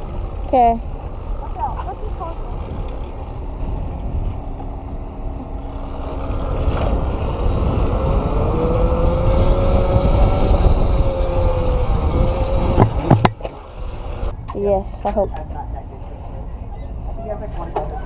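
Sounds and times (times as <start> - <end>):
wind rumble on microphone: 2.4 - 4.6, 5.8 - 13.3
electric motor whine: 5.6 - 14.3
sharp knocks: 12.7 - 13.6.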